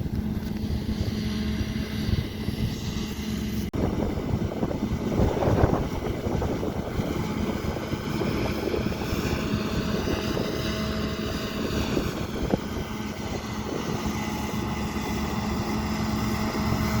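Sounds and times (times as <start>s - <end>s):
combine harvester running: 0.0s - 17.0s.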